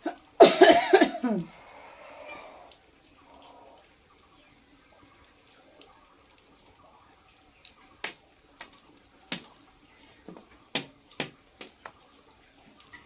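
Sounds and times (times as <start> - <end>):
sharp pops and crackles: 7.6 - 12.1.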